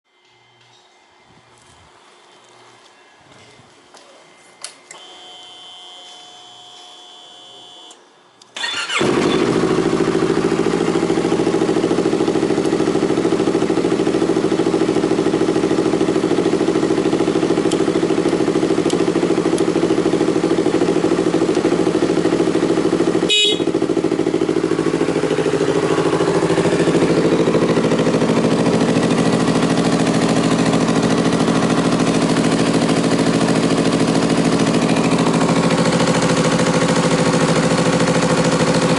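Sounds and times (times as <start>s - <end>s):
motorcycle engine starting and idling: 4.6s - 38.9s.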